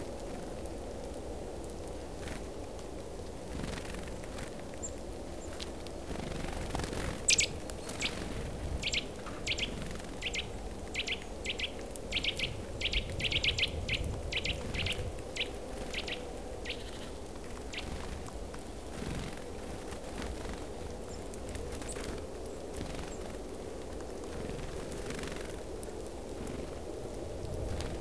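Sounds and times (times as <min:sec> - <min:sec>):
low background noise: 0:00.0 - 0:28.0
birds chirping: 0:07.2 - 0:19.3.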